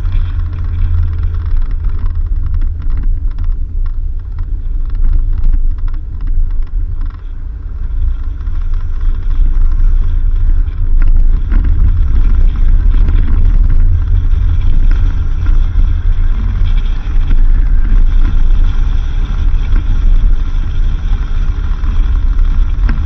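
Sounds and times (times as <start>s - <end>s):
knocks and rattles: 0.0s - 23.0s
off-road vehicle engine rumble: 0.0s - 23.0s.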